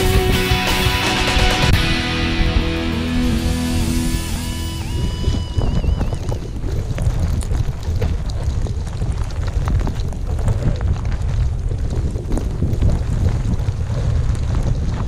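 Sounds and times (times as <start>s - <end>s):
blizzard wind buffeting microphone: 0.0s - 15.0s
small ticks: 5.2s - 15.0s.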